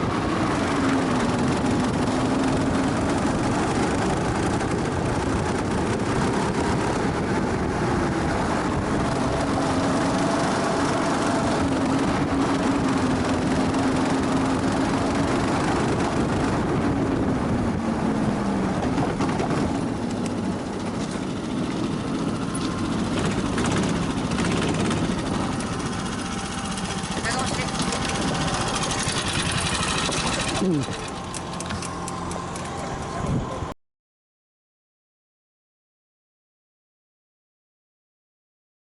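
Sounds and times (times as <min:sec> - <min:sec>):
go-kart engine running: 0:00.0 - 0:33.7
track noise: 0:00.0 - 0:33.7
wind noise: 0:00.0 - 0:33.7.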